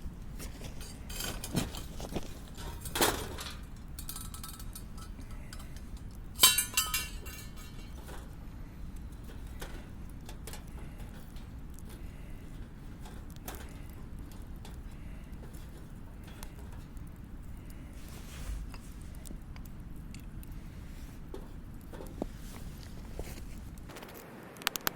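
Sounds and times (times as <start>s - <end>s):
camping gear knocking and clinking: 0.0s - 17.0s.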